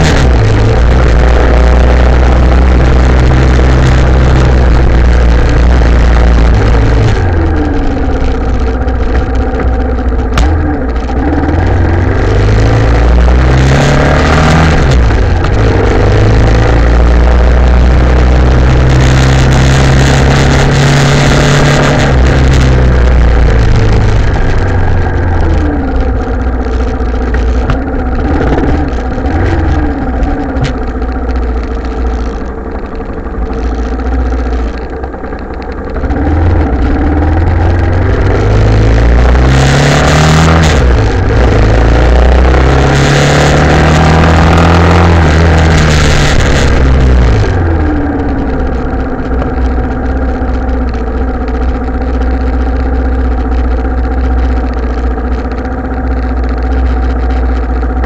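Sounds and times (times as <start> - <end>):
motorcycle engine running: 0.0 - 58.0
wind noise: 36.0 - 52.6.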